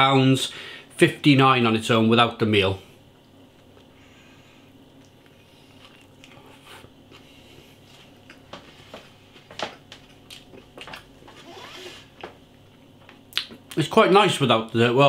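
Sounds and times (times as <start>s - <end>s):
man chewing with mouth smacks: 5.0s - 8.5s, 10.0s - 11.1s.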